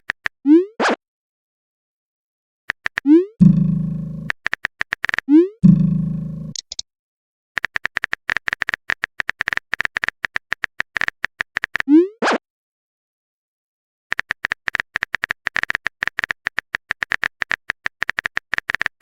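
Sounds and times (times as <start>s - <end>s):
quick typing clicks: 4.3s - 5.2s, 6.5s - 6.8s, 7.6s - 11.9s, 14.1s - 19.0s.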